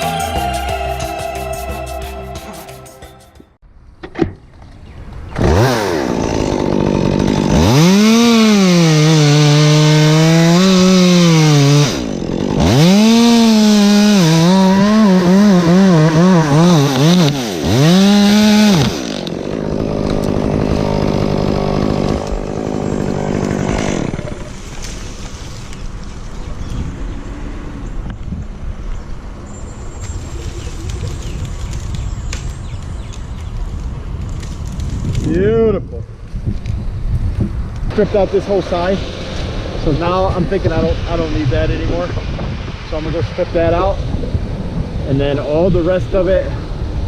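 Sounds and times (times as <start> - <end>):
chainsaw cutting wood: 5.3 - 25.5.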